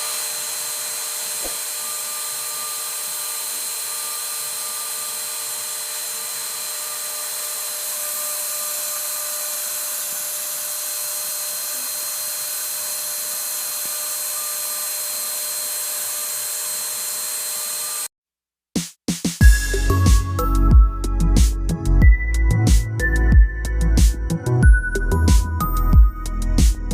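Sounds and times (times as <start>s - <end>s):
cnc router spindle whining: 0.0s - 18.1s.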